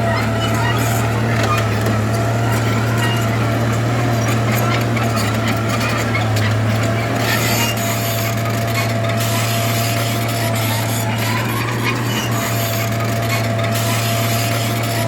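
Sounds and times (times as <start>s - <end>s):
bulldozer diesel engine droning: 0.0s - 15.0s
grinding scraping noise: 0.0s - 15.0s.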